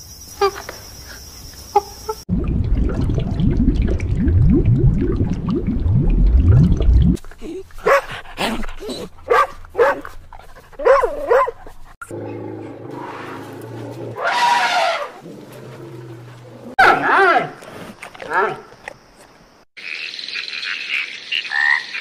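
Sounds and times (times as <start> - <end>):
loud low sounds gliding up: 2.3 - 7.2.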